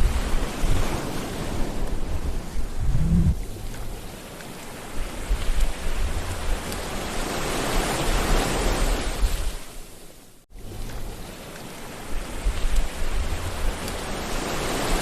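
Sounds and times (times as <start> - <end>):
sea waves washing on shore: 0.0 - 15.0
low rumble: 2.1 - 3.9.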